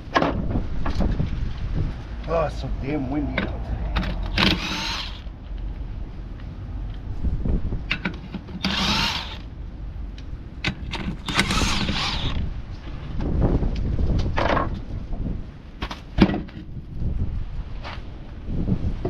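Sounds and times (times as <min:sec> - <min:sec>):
wind rumble on microphone: 0:00.0 - 0:19.0
hand power tool running: 0:04.3 - 0:05.3, 0:08.6 - 0:09.4, 0:11.1 - 0:12.4
sharp clicks: 0:10.1 - 0:12.4.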